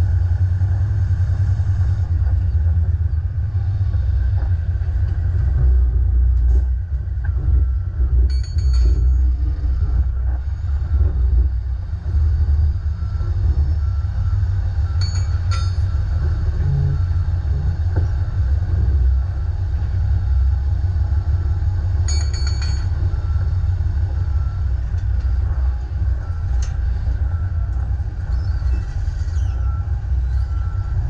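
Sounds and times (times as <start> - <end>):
truck engine rumbling: 0.0 - 31.0
short high-pitched squeaks: 28.3 - 30.6.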